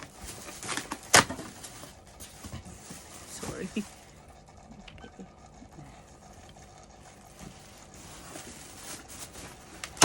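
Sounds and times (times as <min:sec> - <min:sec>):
soft handling knocks and rubbing: 0:01.7 - 0:03.8.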